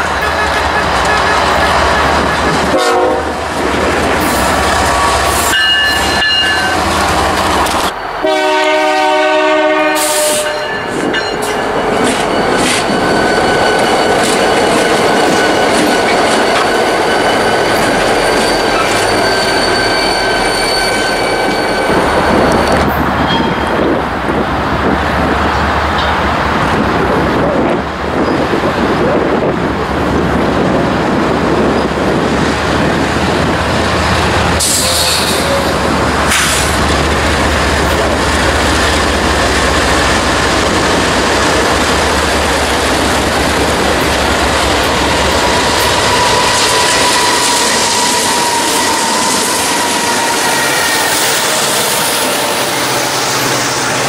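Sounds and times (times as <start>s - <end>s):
diesel locomotive engine drone: 0.0s - 54.0s
train wheel squeal: 4.2s - 8.1s, 10.0s - 24.0s, 28.2s - 28.5s, 34.5s - 36.8s, 43.0s - 54.0s
freight cars rumbling and clattering: 10.7s - 19.7s.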